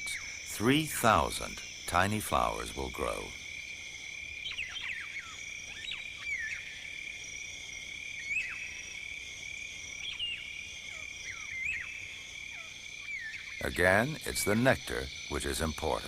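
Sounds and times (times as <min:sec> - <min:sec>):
insect chorus drone: 0:00.0 - 0:16.0
swooping whistled animal calls: 0:04.4 - 0:06.8, 0:08.2 - 0:08.8, 0:10.0 - 0:16.0.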